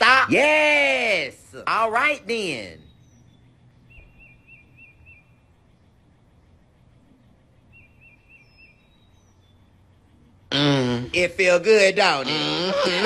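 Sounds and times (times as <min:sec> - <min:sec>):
bird chirping: 0:00.0 - 0:13.0
steady low hum: 0:00.0 - 0:13.0
high bird whistles: 0:03.9 - 0:05.4.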